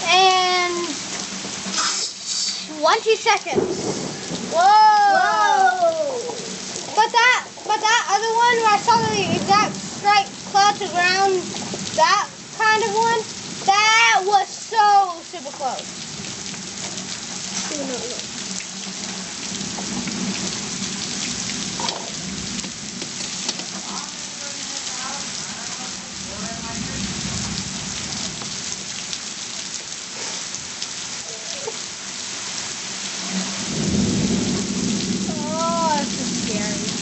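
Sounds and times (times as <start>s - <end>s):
heavy rain falling: 0.0s - 37.0s
thunder rumbling: 2.8s - 15.0s, 15.6s - 23.4s, 24.1s - 29.2s, 33.2s - 37.0s.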